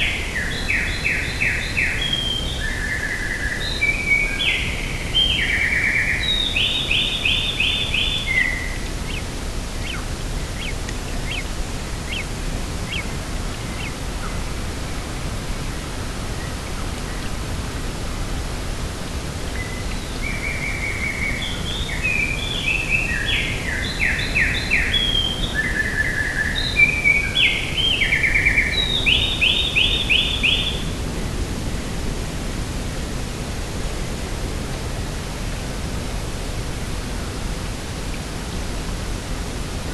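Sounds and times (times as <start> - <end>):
songbird chirping and trilling: 0.0 - 17.4, 19.5 - 31.0
steady outdoor rushing noise: 0.0 - 39.9.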